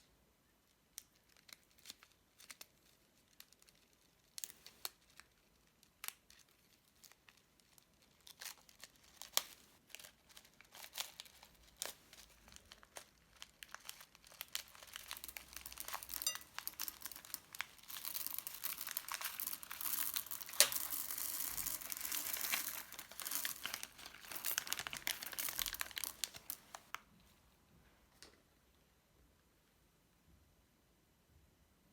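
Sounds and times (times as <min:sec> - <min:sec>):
crunchy slime crackling: 0:01.5 - 0:27.0.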